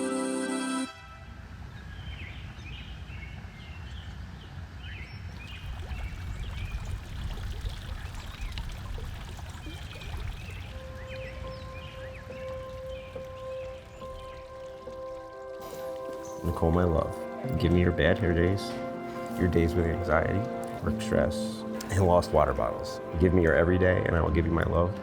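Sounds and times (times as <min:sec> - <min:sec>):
music: 0:00.0 - 0:01.3, 0:10.7 - 0:25.0
birds chirping: 0:01.6 - 0:25.0.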